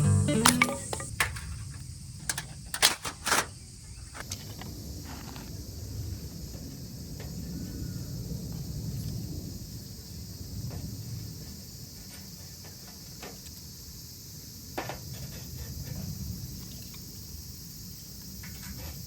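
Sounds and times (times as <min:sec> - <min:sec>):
high insect chorus: 0:00.0 - 0:19.0
sharp clicks and knocks: 0:00.4 - 0:03.5.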